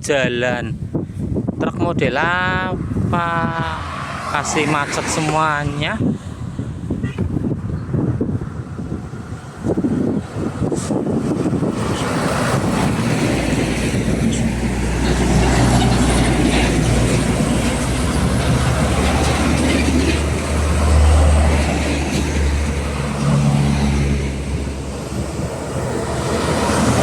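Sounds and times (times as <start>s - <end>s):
traffic noise: 0.8s - 27.0s
diesel truck engine running: 8.0s - 27.0s.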